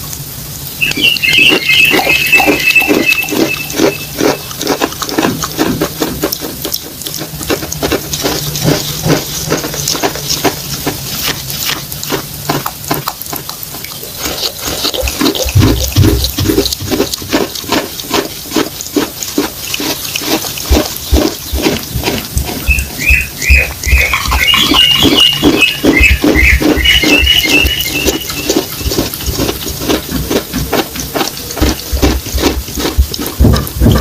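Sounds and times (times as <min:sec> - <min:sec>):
wet chewing: 0:00.0 - 0:34.0
dull low thumps: 0:31.9 - 0:34.0.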